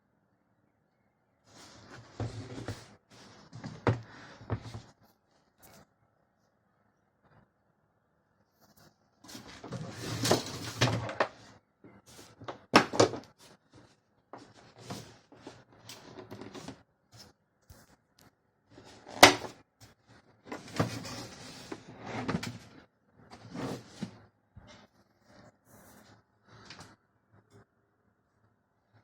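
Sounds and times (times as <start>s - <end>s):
packaging scraping and rustling: 9.3s - 11.4s.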